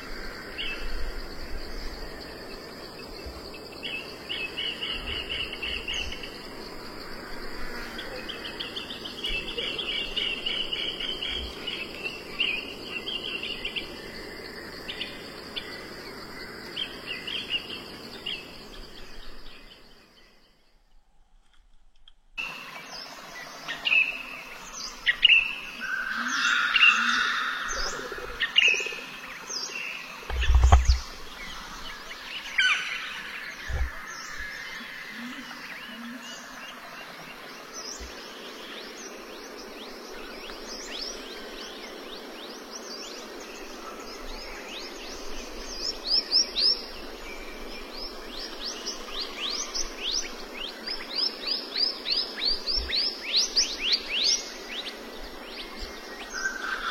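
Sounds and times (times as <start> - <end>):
birds chirping: 22.4 - 56.9.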